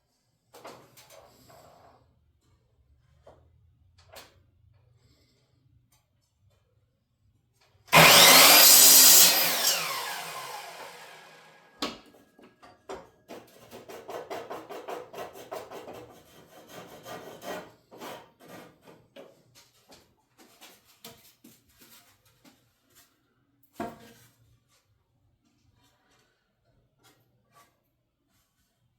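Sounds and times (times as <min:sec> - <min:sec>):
power saw cutting wood: 0:07.9 - 0:11.8
saw motor spinning down: 0:08.0 - 0:11.7.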